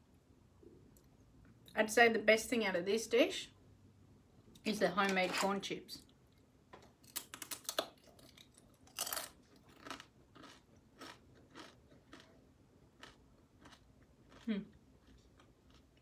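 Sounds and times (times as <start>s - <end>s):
chips crunching while chewed: 7.0s - 16.0s.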